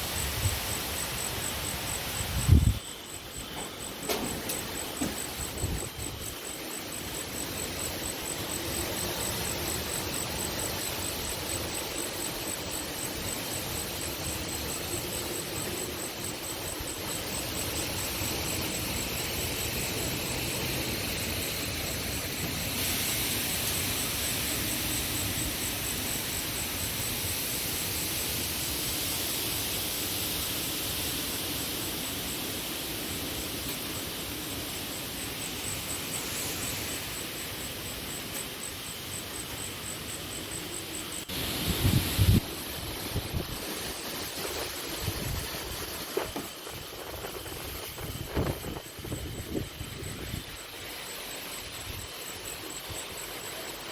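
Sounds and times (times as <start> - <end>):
insect chirping: 0.0 - 53.9
wind rushing over microphone: 2.0 - 2.9, 41.3 - 50.5.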